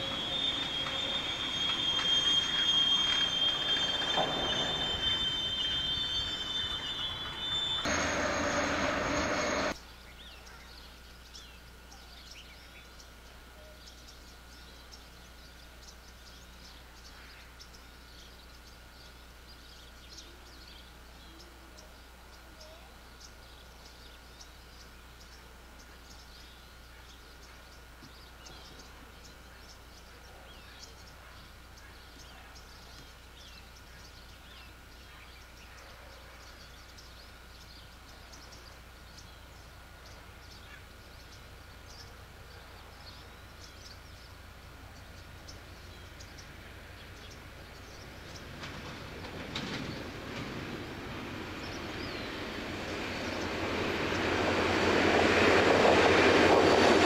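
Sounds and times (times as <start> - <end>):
freight car wheel squeal: 0.0 - 9.8
bird chirps: 0.0 - 50.1
thin steady whine: 0.0 - 57.0.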